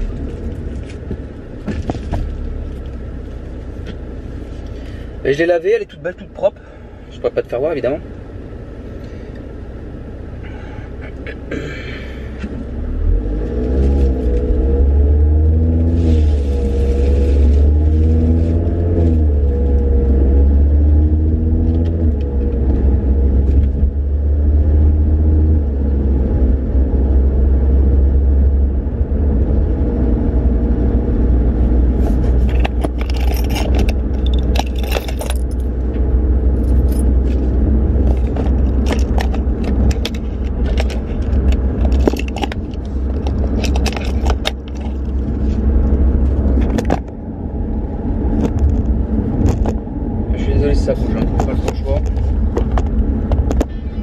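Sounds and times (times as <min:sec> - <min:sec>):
car engine accelerating: 0:11.0 - 0:54.0
metallic clinking and rattling: 0:32.4 - 0:35.8, 0:36.6 - 0:45.3.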